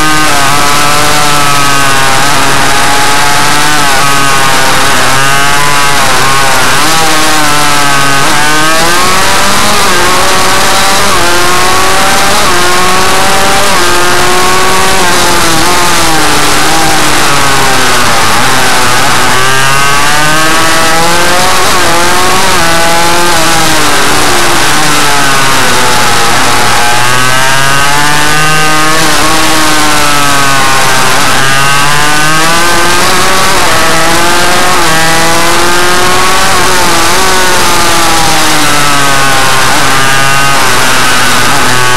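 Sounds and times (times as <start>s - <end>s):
two-stroke motorcycle engine revving: 0.0s - 41.9s.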